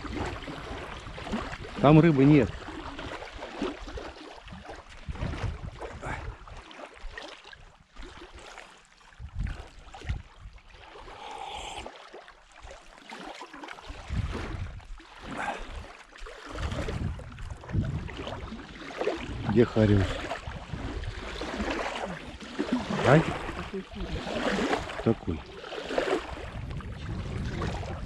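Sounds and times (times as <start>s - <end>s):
water lapping against boat: 0.0s - 28.0s
wind buffeting microphone: 4.5s - 6.5s, 9.2s - 10.6s, 13.9s - 15.5s, 16.5s - 28.0s.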